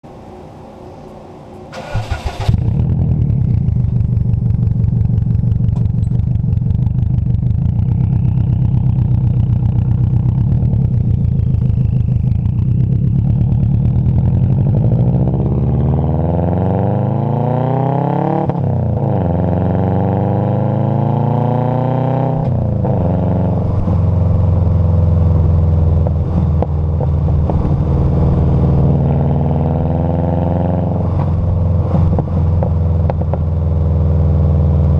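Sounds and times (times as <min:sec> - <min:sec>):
vehicle engine starting and idling: 0:01.5 - 0:16.8
engine revving: 0:01.7 - 0:34.9.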